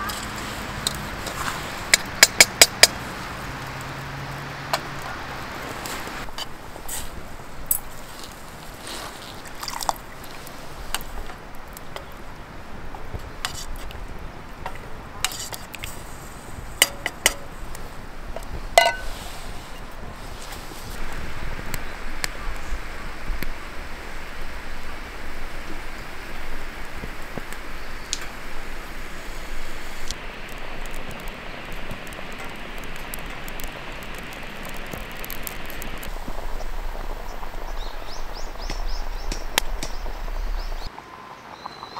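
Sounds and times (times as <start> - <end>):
stream water rushing: 0.0 - 13.0, 16.5 - 41.1
metal cookware clinking: 18.8 - 19.1.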